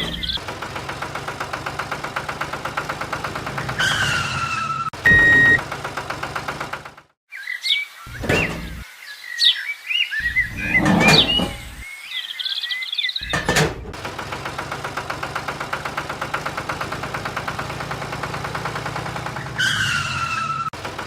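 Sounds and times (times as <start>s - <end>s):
birds chirping: 0.0s - 0.5s, 7.3s - 13.6s
small tractor engine chugging: 0.0s - 7.2s, 13.2s - 19.7s, 20.8s - 21.0s
horn beep: 5.0s - 5.6s.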